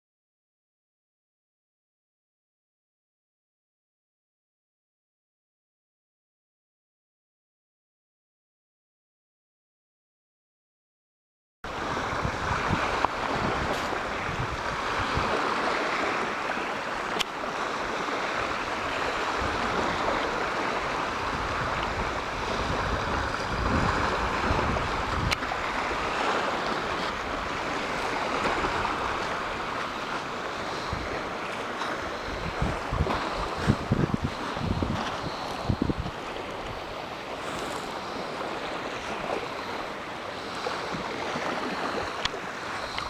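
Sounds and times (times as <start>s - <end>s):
water rushing against hull: 11.6s - 43.0s
wind buffeting microphone: 11.7s - 43.0s.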